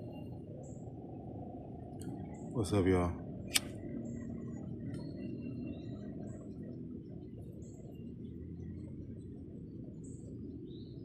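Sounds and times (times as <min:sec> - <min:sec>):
birds chirping: 0:00.0 - 0:11.0
low background rumble: 0:00.0 - 0:11.0.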